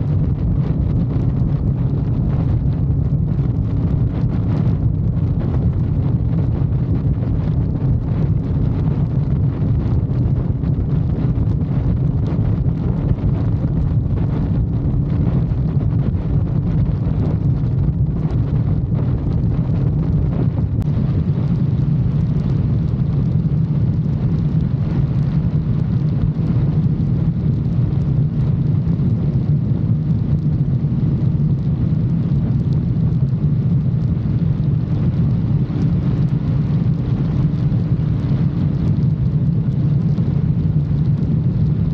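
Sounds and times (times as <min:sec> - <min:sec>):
wind noise on microphone: 0:00.0 - 0:41.9.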